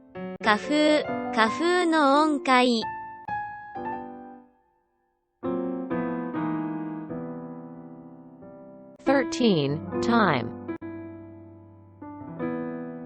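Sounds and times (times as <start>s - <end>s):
piano chords ringing: 5.4s - 13.0s.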